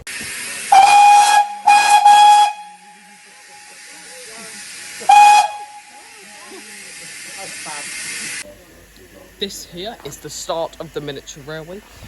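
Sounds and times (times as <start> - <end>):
steam hissing: 0.0 - 12.0
steam locomotive whistle: 0.2 - 8.4.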